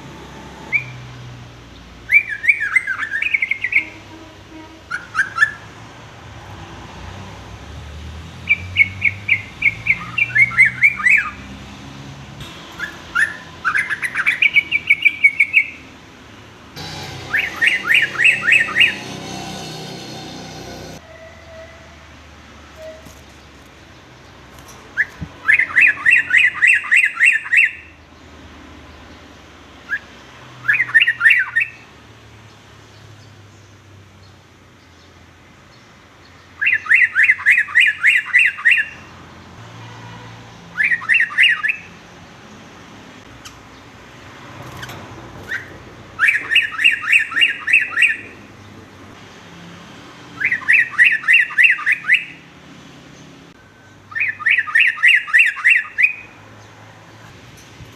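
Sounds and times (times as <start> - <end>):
bulbul singing sweeping notes: 16.8 - 21.0.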